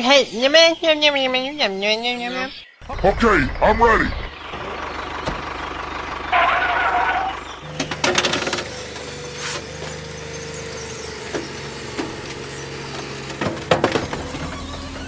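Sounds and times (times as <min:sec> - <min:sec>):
small electric motors whining: 0:07.6 - 0:15.0.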